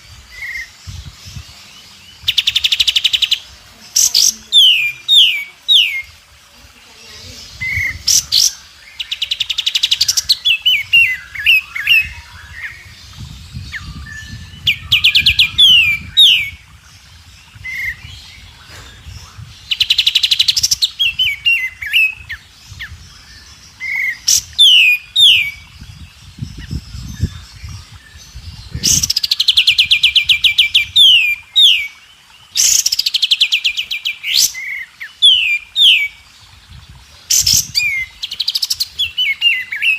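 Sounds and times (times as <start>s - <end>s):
bird chirps and twitters: 0.0s - 39.9s
songbird trilling and whistling: 0.3s - 6.2s, 7.1s - 16.8s, 17.4s - 36.2s.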